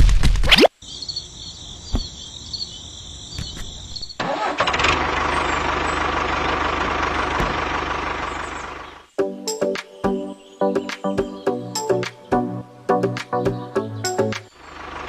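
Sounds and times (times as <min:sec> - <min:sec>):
engine running with low pulsing: 0:04.2 - 0:09.2, 0:14.5 - 0:15.0.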